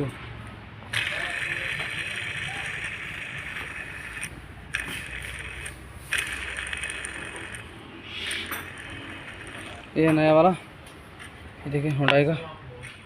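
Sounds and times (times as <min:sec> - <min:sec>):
pulley spinning whir: 0:00.9 - 0:10.3.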